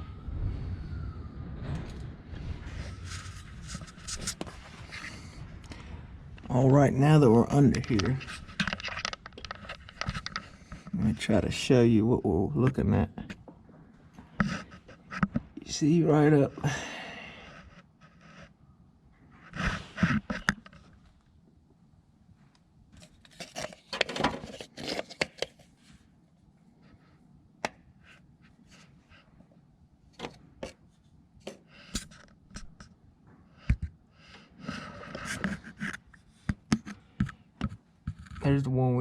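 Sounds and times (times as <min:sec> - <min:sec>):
scraping and rustling: 0:01.6 - 0:11.3, 0:23.0 - 0:26.1, 0:34.6 - 0:38.8.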